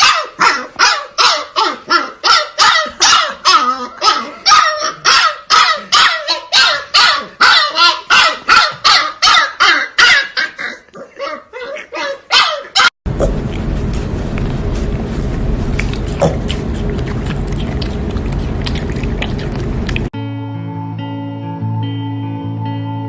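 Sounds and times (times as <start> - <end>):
puppy yapping: 0.0 - 13.0.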